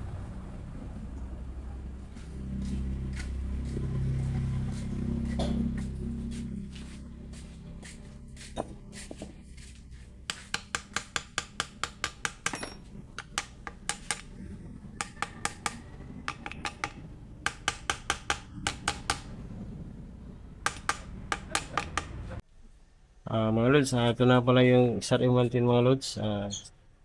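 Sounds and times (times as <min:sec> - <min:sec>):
low hum: 0:00.0 - 0:22.4
hand tools clicking on metal: 0:10.2 - 0:19.6, 0:20.6 - 0:22.4.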